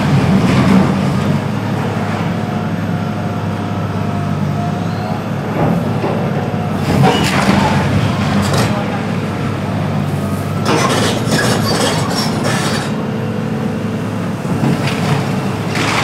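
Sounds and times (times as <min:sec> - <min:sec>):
demolition machinery engine drone: 0:00.0 - 0:16.0
building debris crashing: 0:14.6 - 0:16.0.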